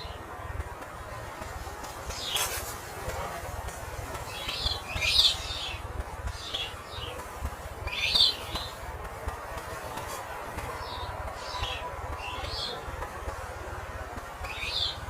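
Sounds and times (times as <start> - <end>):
small bird chirping: 4.3 - 5.8, 7.8 - 8.8.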